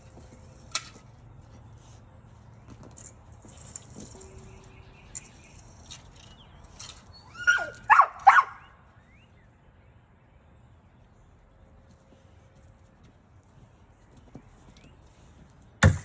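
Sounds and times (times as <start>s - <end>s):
light jingling and clicking: 0.0s - 8.4s
dog whining: 7.2s - 8.5s.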